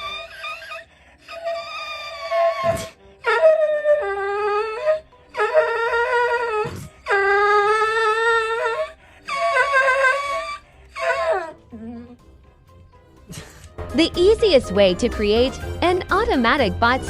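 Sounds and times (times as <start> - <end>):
dog howling: 0.0 - 12.2.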